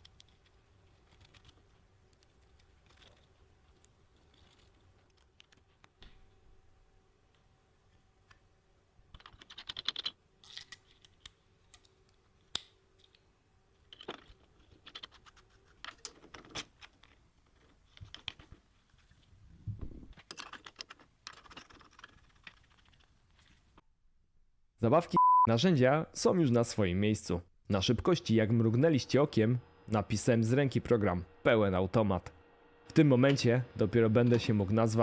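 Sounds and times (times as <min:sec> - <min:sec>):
metal parts and tools clinking: 0:09.2 - 0:12.1.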